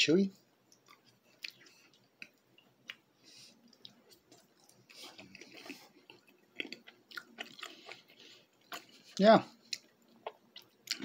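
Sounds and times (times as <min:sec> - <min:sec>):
chewing soft pastry: 0:00.6 - 0:11.0.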